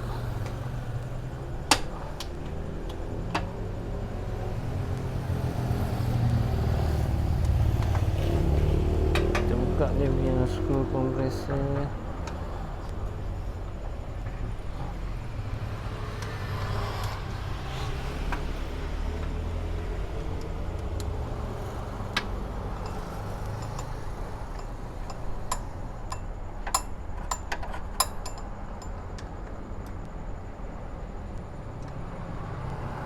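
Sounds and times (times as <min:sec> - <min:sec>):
hand tools clicking on metal: 0:22.2 - 0:29.9.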